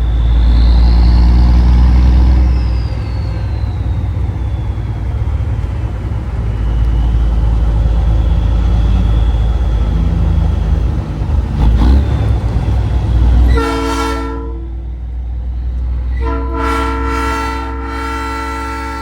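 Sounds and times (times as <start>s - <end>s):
truck engine and road rumble: 0.0s - 19.0s
train horn chord: 13.5s - 14.8s, 16.1s - 19.0s.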